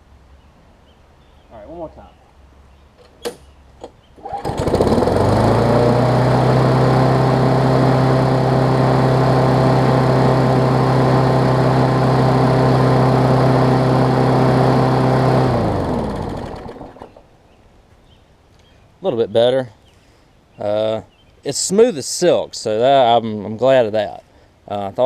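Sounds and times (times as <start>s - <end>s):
lawn mower engine running: 4.2s - 17.3s.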